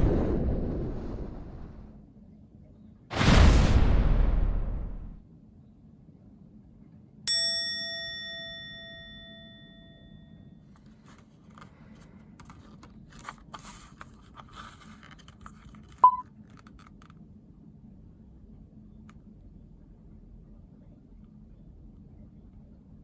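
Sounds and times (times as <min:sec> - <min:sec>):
bright metallic ding: 0:07.3 - 0:10.1
faint clicks and rustling: 0:10.7 - 0:17.3
short high beep: 0:16.0 - 0:16.2.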